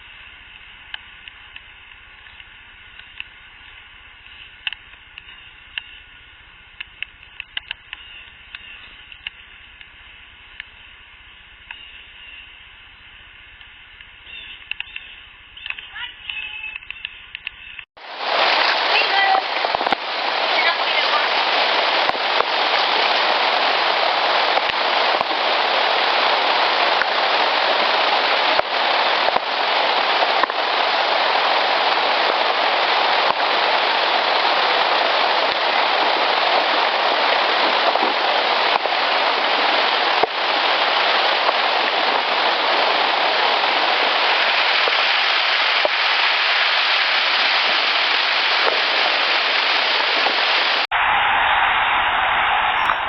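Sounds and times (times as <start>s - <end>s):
steady rain-like hiss: 0.0s - 53.0s
sharp clicks: 13.6s - 17.9s.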